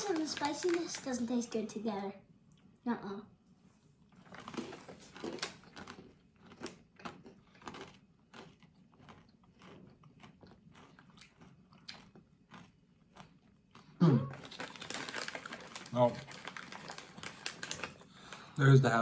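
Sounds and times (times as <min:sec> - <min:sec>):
crunchy snack being chewed: 0:04.1 - 0:18.2.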